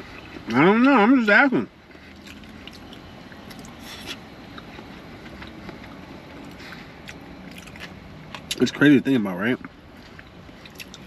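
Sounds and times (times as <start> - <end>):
steady low hum: 0.0 - 11.0
soft chewing: 1.8 - 8.8, 9.6 - 11.0.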